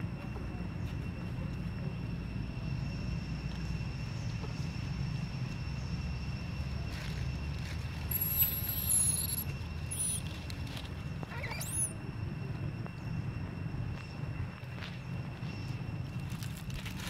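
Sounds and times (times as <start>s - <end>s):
baby monkey squealing: 8.1s - 10.2s, 11.3s - 12.0s.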